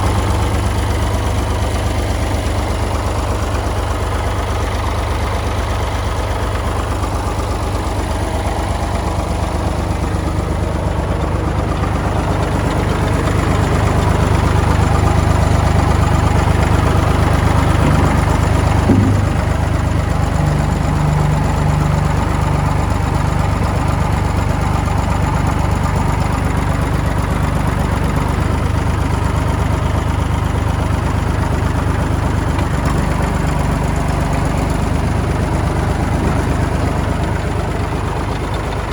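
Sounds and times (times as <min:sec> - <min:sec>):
tractor diesel engine idling: 0:00.0 - 0:38.9
short knock: 0:17.7 - 0:21.0.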